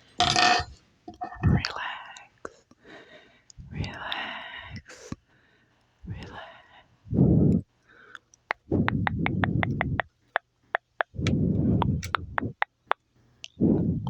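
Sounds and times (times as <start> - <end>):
wet mouth clicks and pops: 8.2 - 13.6.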